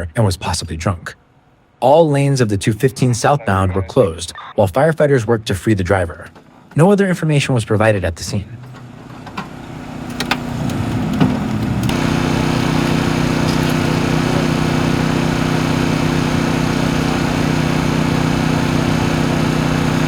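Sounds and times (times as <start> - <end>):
engine running steadily: 8.6 - 20.0.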